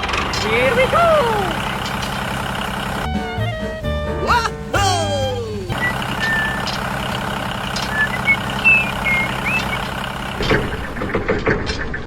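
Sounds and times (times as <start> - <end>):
engine idling drone: 0.0 - 4.0, 4.6 - 11.4.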